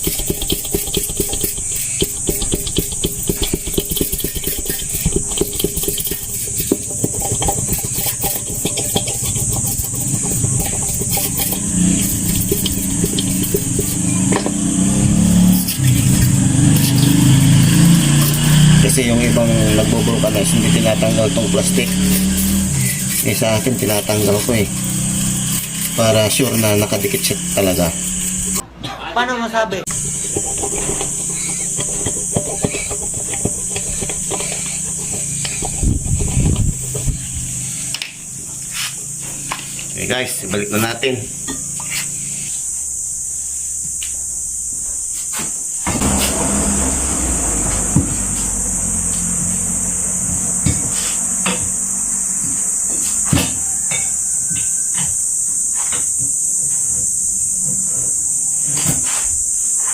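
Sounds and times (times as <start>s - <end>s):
rubbing on tire: 0.0s - 28.6s, 29.9s - 40.4s, 45.1s - 53.9s, 57.8s - 59.9s
engine running: 0.0s - 28.8s, 29.8s - 59.8s
low hum: 0.3s - 28.7s, 45.8s - 54.6s
steady high hiss: 29.8s - 59.9s.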